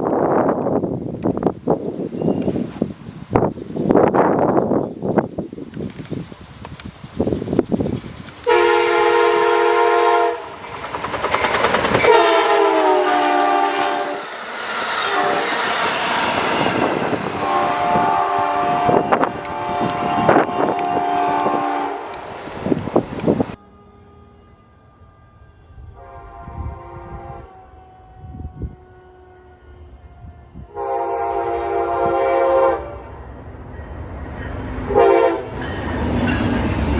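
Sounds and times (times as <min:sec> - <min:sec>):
train rushing by: 0:00.0 - 0:23.6, 0:29.8 - 0:36.9
train horn blasts: 0:08.4 - 0:10.7, 0:11.9 - 0:22.3, 0:23.6 - 0:33.1, 0:34.8 - 0:36.7.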